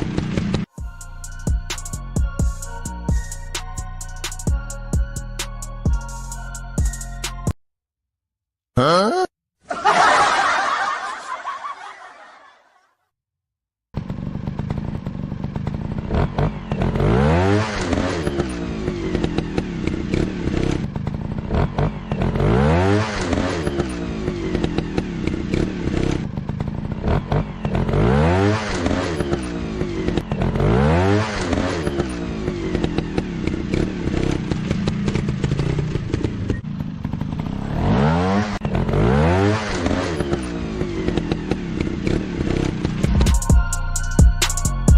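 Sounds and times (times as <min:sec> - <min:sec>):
motorcycle engine revving: 0:13.9 - 0:43.7.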